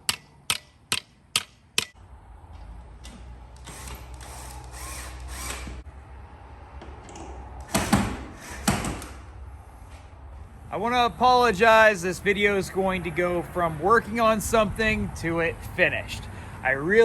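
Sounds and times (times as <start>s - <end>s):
power drill running: 3.6s - 5.8s.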